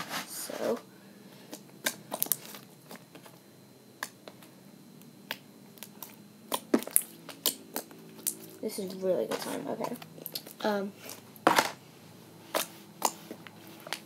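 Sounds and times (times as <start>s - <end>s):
slime squishing with sticky clicks: 1.5s - 3.3s, 4.0s - 4.5s, 5.2s - 11.2s, 12.5s - 14.0s.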